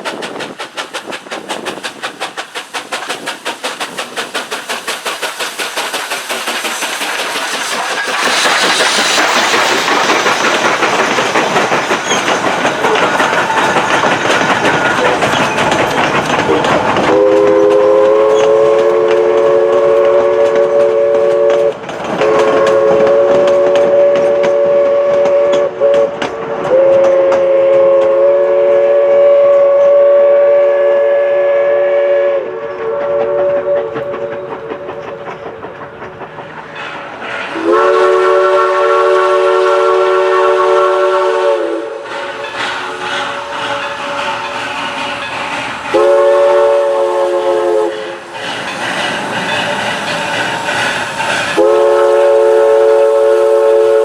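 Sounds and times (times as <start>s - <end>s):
train running clickety-clack: 0.0s - 54.0s
steam locomotive chime whistle: 17.1s - 35.4s, 37.5s - 44.5s, 45.2s - 48.8s, 51.5s - 54.0s.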